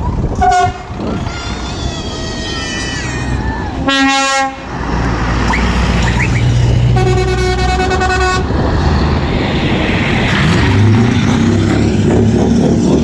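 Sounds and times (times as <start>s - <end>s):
truck engines rumbling: 0.0s - 13.0s
truck horn blast: 0.4s - 1.7s, 3.8s - 4.7s, 5.5s - 8.6s.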